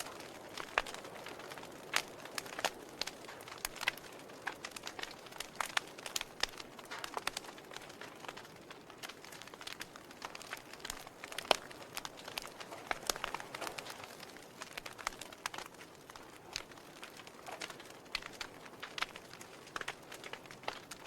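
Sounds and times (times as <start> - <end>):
log fire crackling: 0.0 - 21.0.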